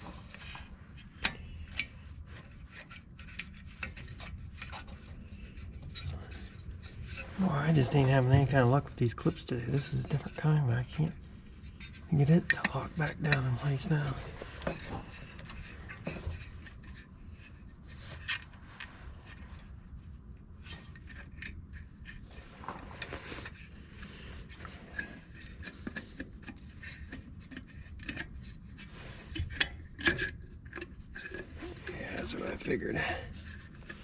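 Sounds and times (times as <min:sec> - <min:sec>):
small clicks and scrapes of bulb clip: 0:00.3 - 0:07.4, 0:23.0 - 0:32.0.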